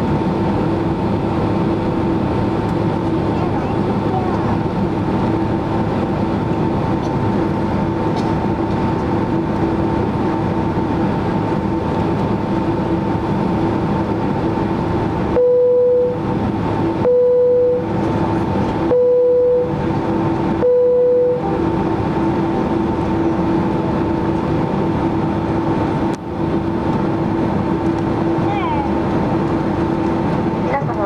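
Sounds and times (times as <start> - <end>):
airplane cabin rumble: 0.0 - 31.0
mid-pitched beeps: 15.4 - 16.2, 17.0 - 17.9, 18.8 - 19.8, 20.6 - 21.6.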